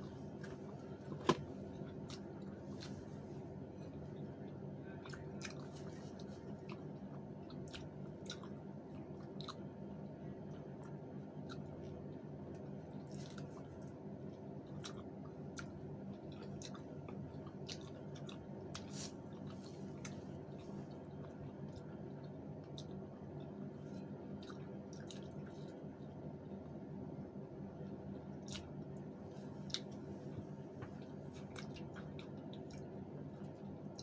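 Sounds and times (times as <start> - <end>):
steady low hum: 0.0 - 34.0
people chewing: 0.3 - 26.6, 28.4 - 34.0.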